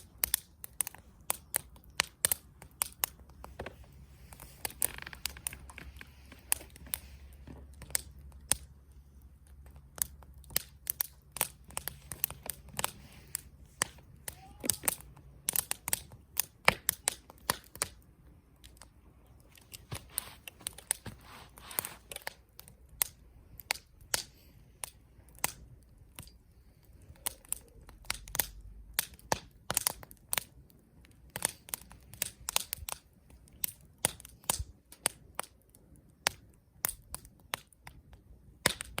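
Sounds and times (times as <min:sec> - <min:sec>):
campfire crackling: 0:00.0 - 0:39.0.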